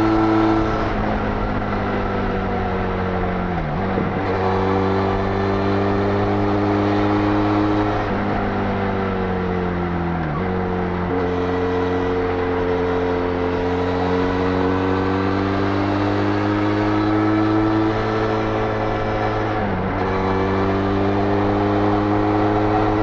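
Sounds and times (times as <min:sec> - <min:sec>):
motorcycle engine at highway speed: 0:00.0 - 0:23.0.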